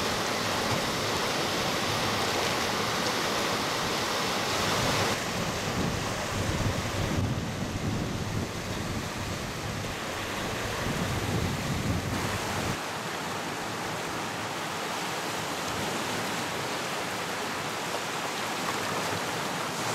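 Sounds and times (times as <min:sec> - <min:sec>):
wind buffeting microphone: 0:05.0 - 0:12.8.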